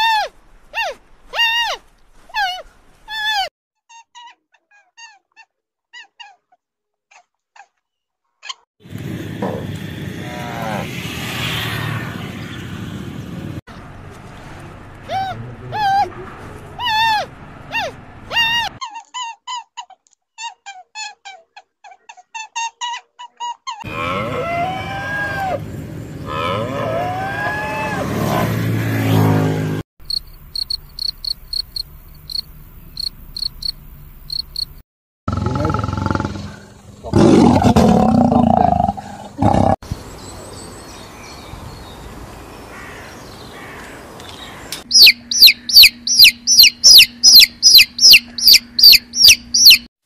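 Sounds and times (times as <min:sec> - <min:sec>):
rising and falling animal calls: 0:23.8 - 0:29.4, 0:44.7 - 0:49.9
lion roaring: 0:23.9 - 0:25.6, 0:35.3 - 0:39.8
chicks peeping: 0:44.9 - 0:49.8.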